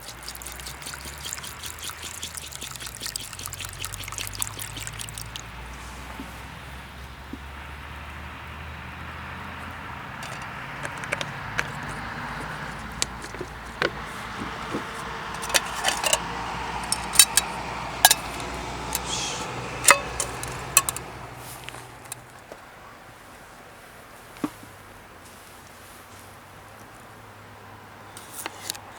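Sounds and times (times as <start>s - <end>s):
objects clinking and knocking: 10.2s - 12.0s, 12.7s - 19.1s, 19.8s - 21.0s.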